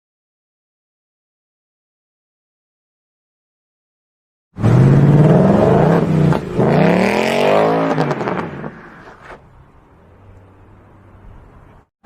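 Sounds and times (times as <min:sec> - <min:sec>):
car engine revving: 0:04.6 - 0:09.2.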